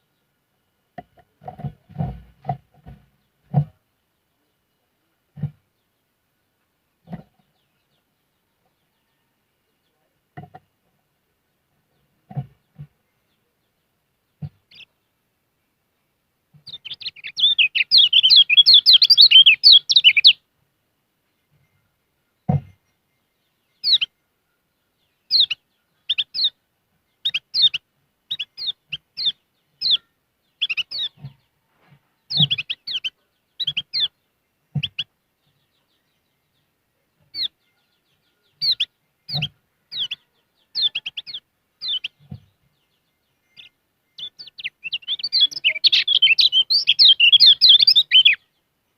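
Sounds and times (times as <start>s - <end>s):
bird twittering and chirping: 11.9s - 15.1s, 16.5s - 20.4s, 21.3s - 31.6s, 32.2s - 48.6s.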